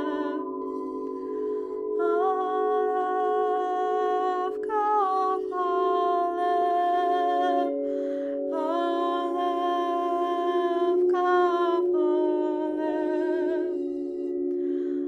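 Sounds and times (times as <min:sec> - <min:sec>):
steady drone: 0:00.0 - 0:11.2
woman singing wordless tones: 0:00.0 - 0:15.0
singer breathing: 0:00.6 - 0:02.0.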